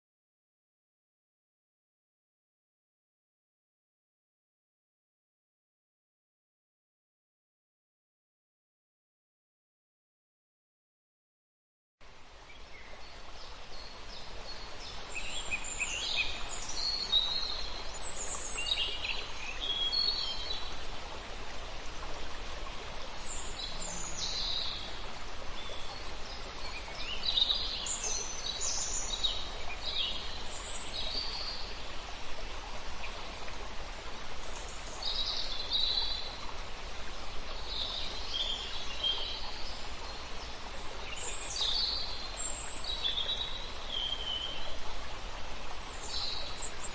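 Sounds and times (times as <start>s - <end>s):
steady background hiss: 12.0s - 46.9s.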